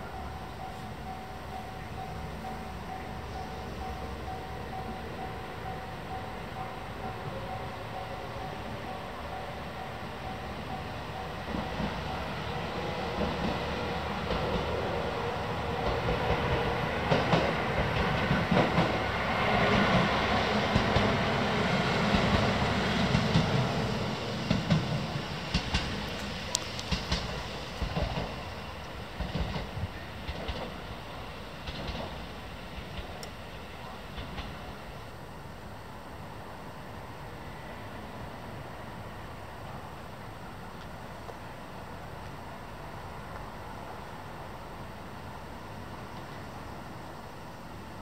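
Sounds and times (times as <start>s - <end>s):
railcar wheels clacking: 0.0s - 35.1s.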